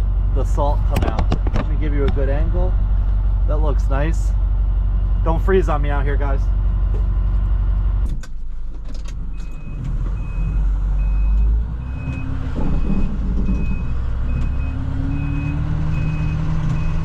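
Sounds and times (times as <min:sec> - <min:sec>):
truck engine running: 0:00.0 - 0:17.0
truck backup alarm beeping: 0:09.3 - 0:17.0.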